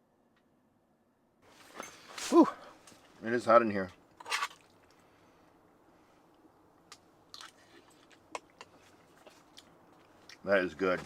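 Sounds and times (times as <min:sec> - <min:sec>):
person chewing: 0:07.3 - 0:10.4.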